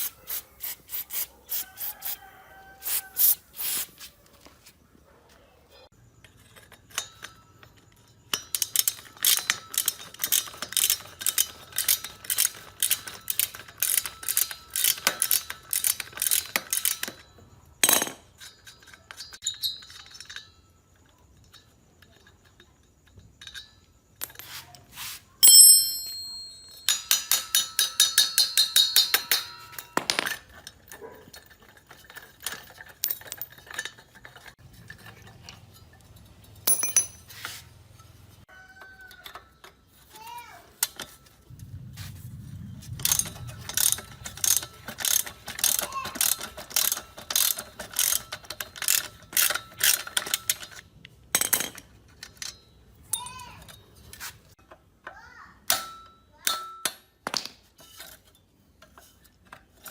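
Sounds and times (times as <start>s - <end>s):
tools clinking on metal parts: 6.2s - 24.8s, 25.4s - 41.4s, 43.0s - 59.9s
ringing metal clang: 25.4s - 30.4s, 35.8s - 37.4s.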